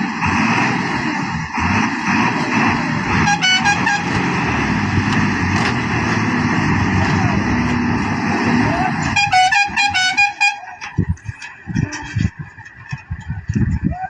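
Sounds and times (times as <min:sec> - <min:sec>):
heavy trucks running: 0:00.0 - 0:14.0
truck horn blast: 0:03.1 - 0:04.6, 0:08.9 - 0:10.8.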